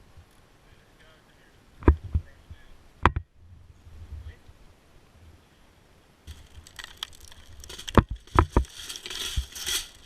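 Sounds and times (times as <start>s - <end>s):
brush and twigs crunching underfoot: 6.2s - 10.0s
sharp cracks: 6.3s - 10.0s.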